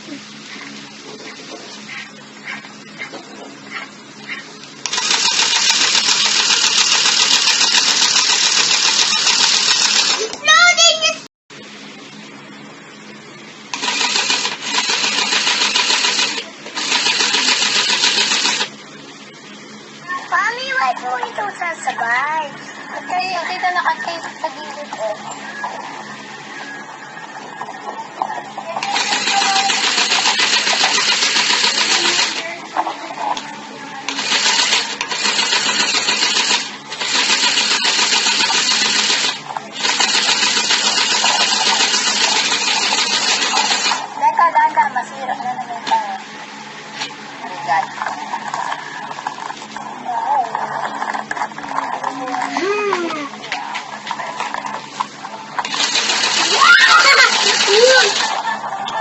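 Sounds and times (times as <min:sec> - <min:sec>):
toy sewing machine chattering: 0:04.8 - 0:10.4, 0:13.7 - 0:18.7, 0:28.8 - 0:32.5, 0:34.1 - 0:44.1, 0:55.6 - 0:58.6.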